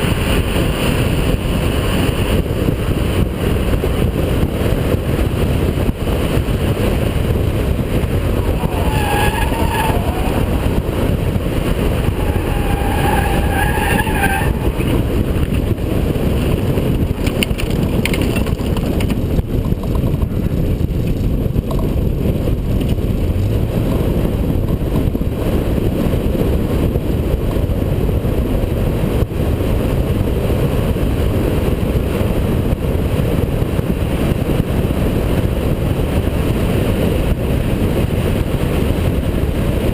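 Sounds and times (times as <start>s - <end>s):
car engine under load: 0.0s - 35.2s
road noise: 0.0s - 39.9s
tyres squealing: 8.3s - 15.3s.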